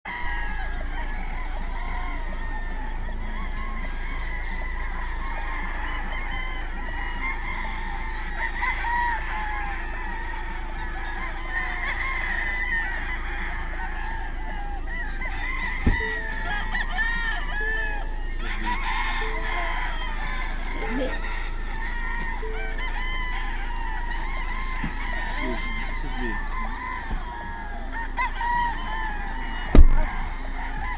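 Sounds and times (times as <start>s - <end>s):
chickens clucking: 0.1s - 30.9s
sharp thump: 29.7s - 30.1s.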